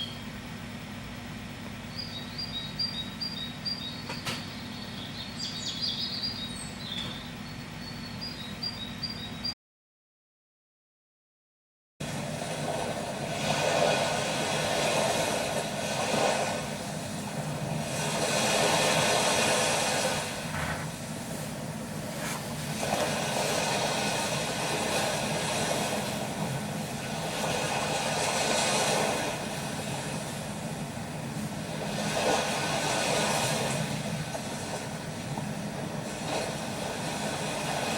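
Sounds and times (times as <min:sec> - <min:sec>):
sea waves on sandy shore: 0:12.1 - 0:20.6, 0:22.1 - 0:37.9.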